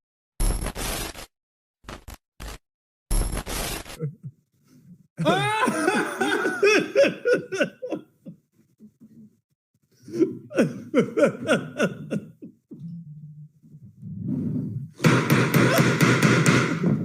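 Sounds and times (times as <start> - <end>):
people laughing hard: 5.2 - 8.4, 10.0 - 12.7.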